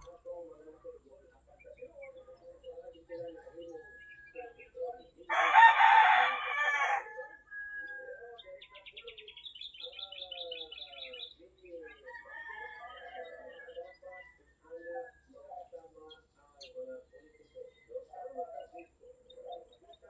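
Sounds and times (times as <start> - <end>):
small birds chirping: 0.0 - 20.0
rooster crowing: 5.3 - 8.2, 12.0 - 13.8.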